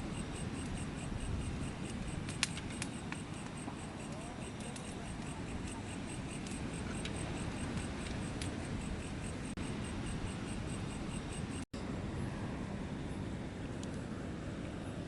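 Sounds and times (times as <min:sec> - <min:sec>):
insects chirping: 0:00.0 - 0:11.7.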